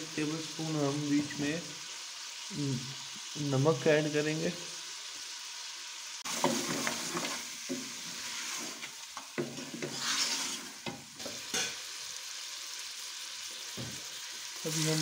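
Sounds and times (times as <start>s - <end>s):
food sizzling in butter: 0.0s - 15.0s
wooden spoon scraping pot: 6.3s - 11.6s.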